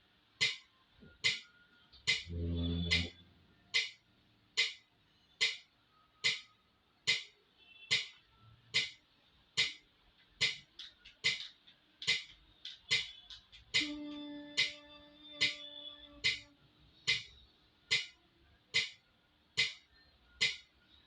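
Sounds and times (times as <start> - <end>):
metronome ticking: 0.4 - 3.1, 3.7 - 4.0, 4.6 - 4.8, 5.4 - 5.6, 6.2 - 6.5, 10.4 - 14.8, 15.4 - 16.5.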